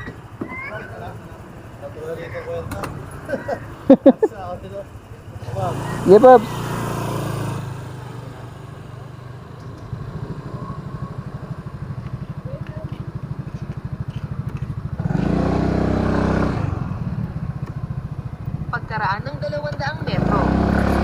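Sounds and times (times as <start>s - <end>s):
motorcycle engine pulsing: 0.0s - 21.0s
louder engine revving: 5.4s - 12.3s, 14.8s - 18.0s, 20.0s - 21.0s.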